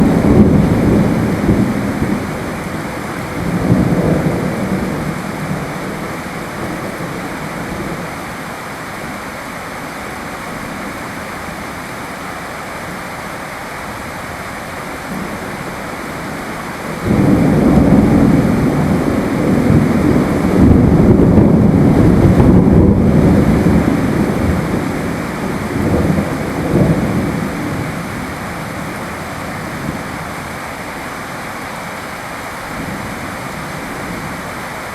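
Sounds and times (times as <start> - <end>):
rolling thunder: 0.0 - 8.1, 15.1 - 30.1
steady rain: 0.0 - 34.9.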